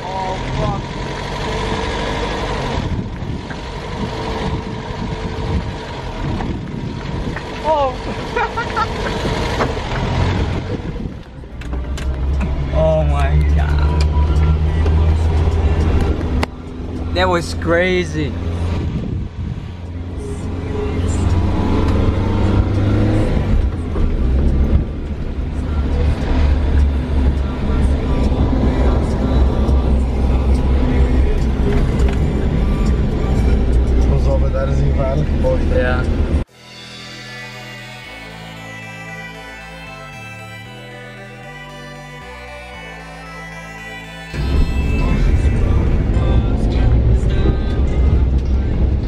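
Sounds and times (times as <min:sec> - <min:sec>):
car engine running under load: 0:00.0 - 0:17.3
car engine running hard: 0:00.0 - 0:36.5, 0:44.3 - 0:49.0.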